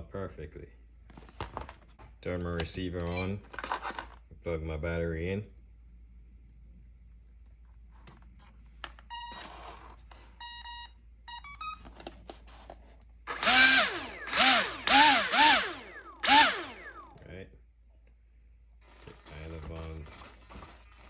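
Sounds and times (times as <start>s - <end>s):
electric motor whirring bursts: 13.3s - 17.1s
speed controller beeping: 13.3s - 17.1s.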